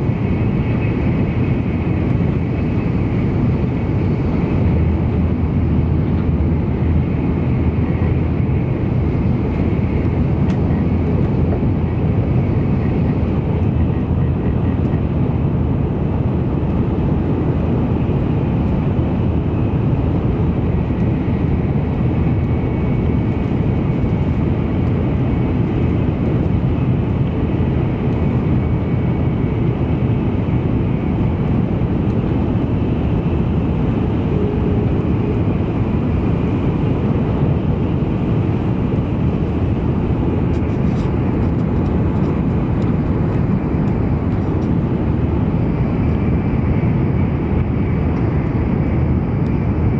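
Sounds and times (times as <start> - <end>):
train cabin rumble: 0.0 - 49.6
faint high whine: 32.6 - 46.6.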